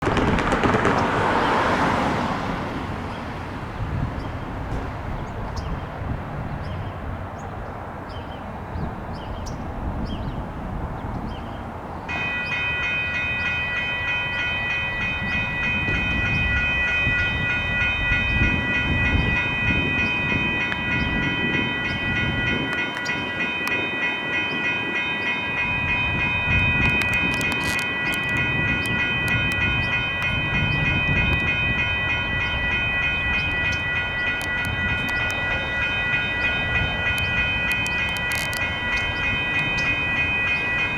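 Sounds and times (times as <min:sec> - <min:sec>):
low rumble: 0:00.0 - 0:03.1
railroad crossing electronic bells: 0:00.0 - 0:40.9.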